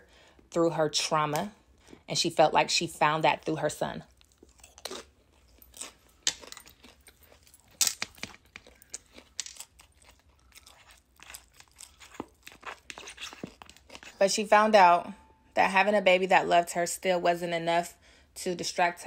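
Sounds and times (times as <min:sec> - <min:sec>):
chewing with wet mouth clicks: 0:04.1 - 0:14.2
food crunches: 0:04.1 - 0:14.2.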